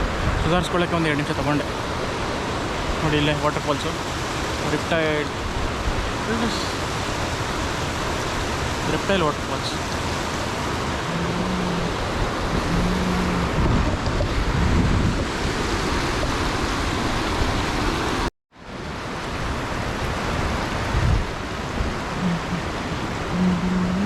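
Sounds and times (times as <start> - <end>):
steady rushing noise: 0.0 - 18.3
wind gusting on microphone: 0.0 - 24.0.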